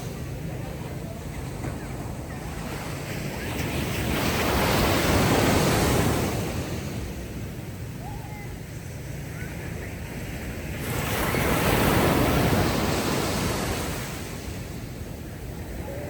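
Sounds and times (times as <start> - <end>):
ocean waves washing onto beach: 0.0 - 16.0.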